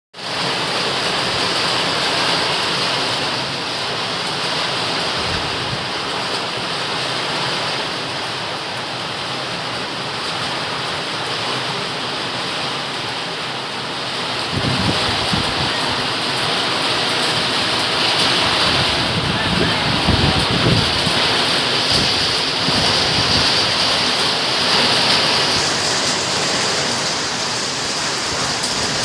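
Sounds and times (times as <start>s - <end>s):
steady rain: 0.2s - 29.0s.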